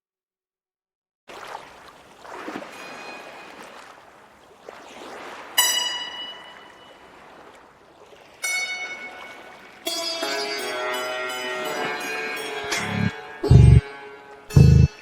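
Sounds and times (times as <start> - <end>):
soft wash of running water: 1.3 - 12.2
ringing struck notes: 5.6 - 7.0, 8.4 - 15.0.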